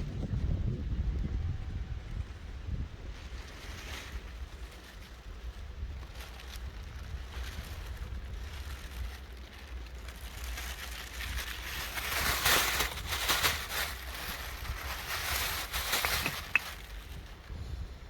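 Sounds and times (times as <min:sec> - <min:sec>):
campfire crackling: 0:08.2 - 0:17.6.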